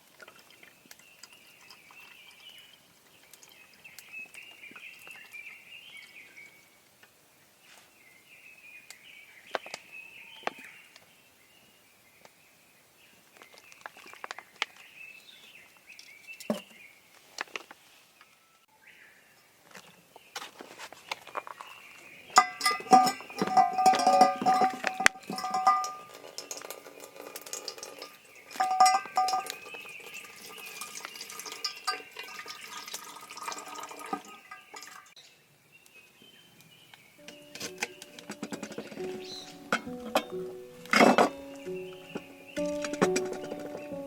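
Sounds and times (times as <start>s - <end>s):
small birds chirping: 0.0s - 44.0s
sharp clicks and knocks: 37.2s - 44.0s.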